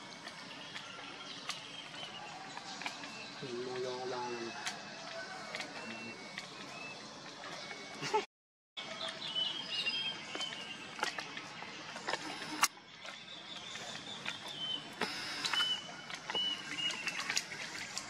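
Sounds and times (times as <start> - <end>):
small birds chirping: 8.9 - 18.0.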